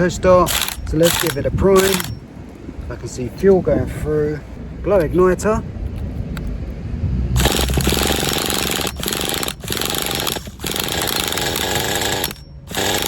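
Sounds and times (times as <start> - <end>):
starter spinning model engine: 0.5 - 2.1, 7.4 - 13.0.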